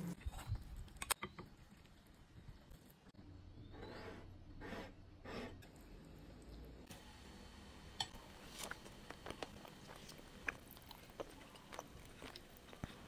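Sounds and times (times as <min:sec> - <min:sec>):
faint chewing and mouth clicks: 0:08.0 - 0:13.0.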